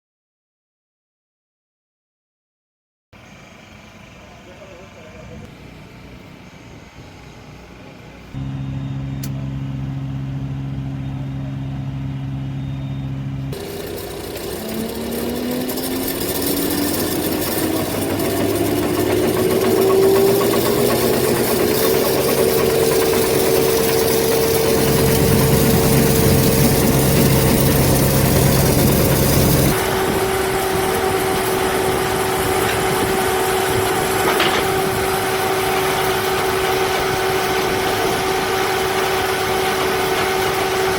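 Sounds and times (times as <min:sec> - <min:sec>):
diesel engine revving: 0:08.4 - 0:40.9.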